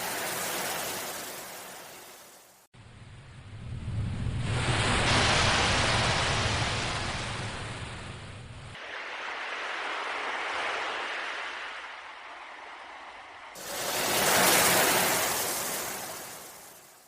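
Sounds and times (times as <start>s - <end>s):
ocean waves washing in: 0.0s - 17.0s
low rumble: 2.8s - 8.8s.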